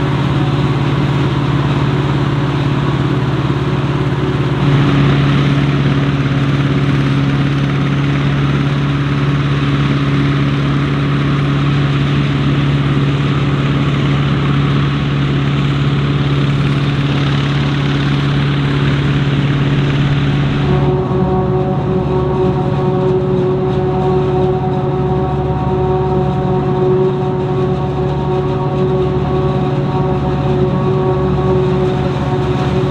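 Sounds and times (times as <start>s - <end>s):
diesel engine hum: 0.0s - 32.9s
dense rushing noise: 15.7s - 24.3s.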